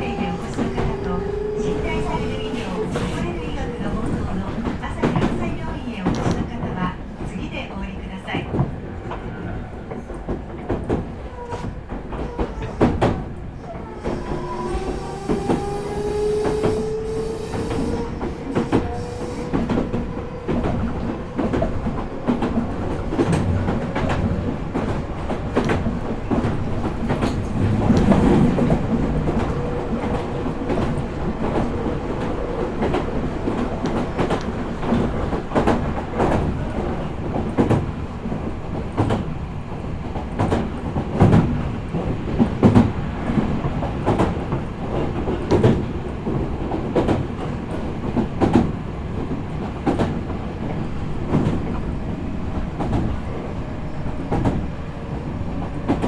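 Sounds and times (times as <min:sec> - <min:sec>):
train motor whine: 0:00.0 - 0:04.5, 0:12.4 - 0:21.8
wheels clacking over rail joints: 0:00.0 - 0:07.4, 0:08.5 - 0:56.0
train rumble: 0:00.0 - 0:56.0.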